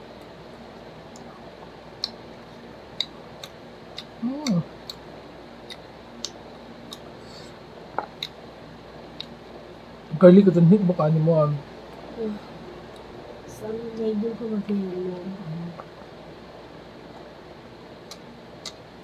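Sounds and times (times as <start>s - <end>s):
person humming: 4.2s - 4.7s.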